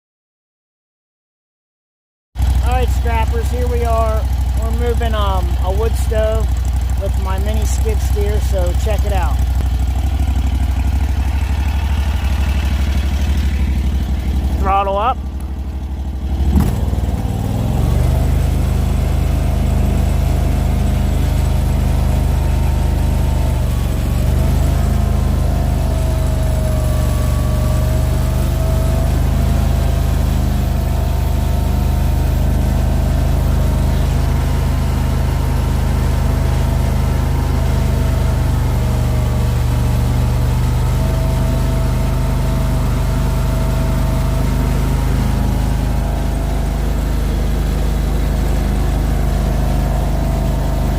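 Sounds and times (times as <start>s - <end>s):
skid steer engine revving: 2.4s - 50.9s
wavering whine: 4.6s - 16.0s.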